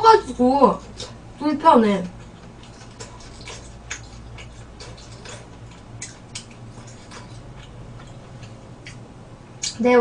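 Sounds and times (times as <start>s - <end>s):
low steady hum: 0.0s - 10.0s
wet chewing and lip-smacking: 2.2s - 9.9s.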